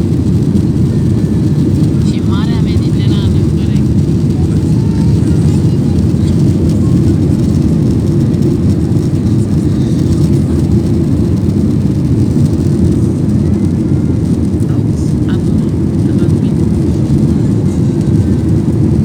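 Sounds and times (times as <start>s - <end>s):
airliner cabin engine rumble: 0.0s - 19.0s.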